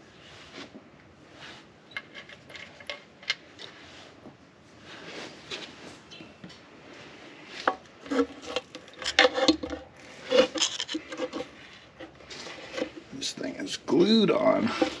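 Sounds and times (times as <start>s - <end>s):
hand tools scraping and knocking on metal: 7.5s - 15.0s.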